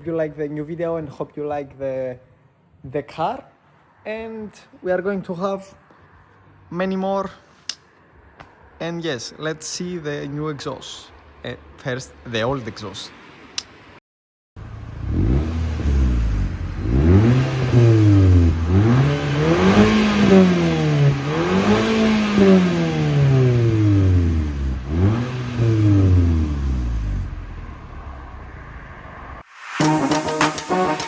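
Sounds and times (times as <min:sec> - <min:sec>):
car engine revving: 0:14.6 - 0:31.0.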